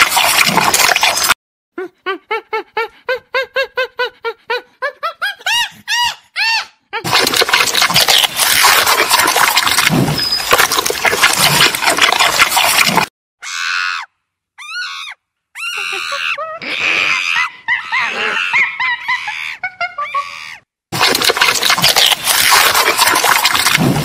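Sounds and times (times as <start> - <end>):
rough crackling noise: 21.0 - 24.0.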